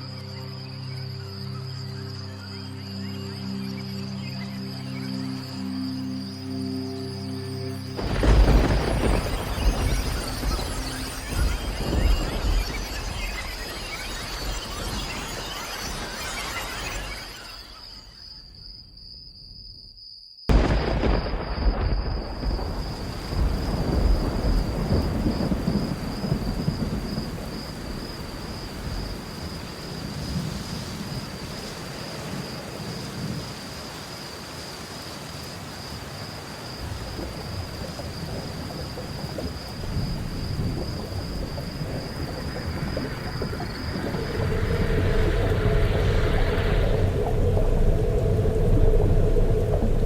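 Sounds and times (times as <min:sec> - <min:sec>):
rain hiss: 0:00.0 - 0:18.3, 0:20.5 - 0:50.0
thunderclap: 0:08.0 - 0:15.0, 0:20.5 - 0:31.5, 0:36.8 - 0:50.0
rolling thunder rumbles: 0:08.0 - 0:15.4, 0:20.5 - 0:33.5, 0:36.8 - 0:50.0.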